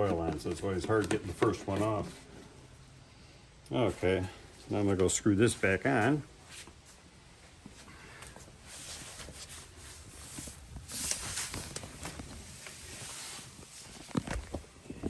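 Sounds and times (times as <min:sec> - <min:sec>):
rustling and shuffling: 0:00.0 - 0:15.0.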